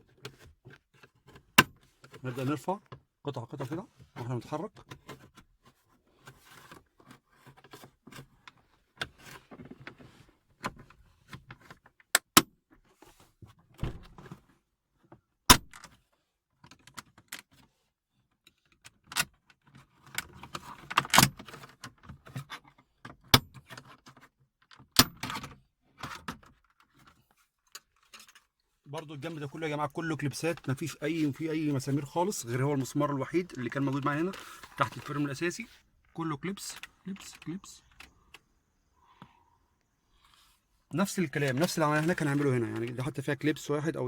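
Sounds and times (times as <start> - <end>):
plastic trim rustling and scraping: 26.8 - 38.4, 41.2 - 43.1.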